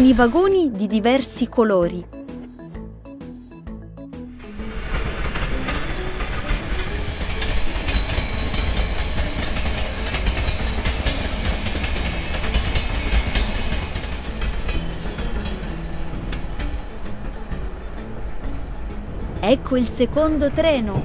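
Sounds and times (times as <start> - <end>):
train rumbling past: 0.0 - 21.0
wheels clattering over rail joints: 4.5 - 21.0.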